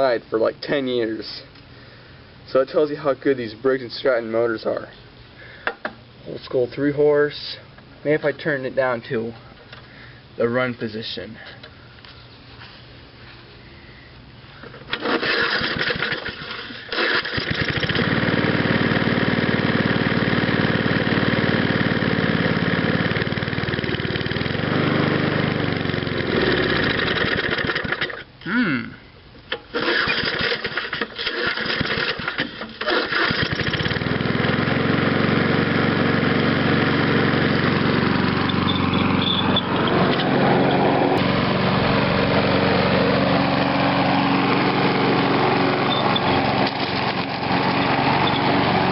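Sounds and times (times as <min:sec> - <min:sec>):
lawn mower engine running: 0:14.5 - 0:28.3, 0:29.5 - 0:48.9.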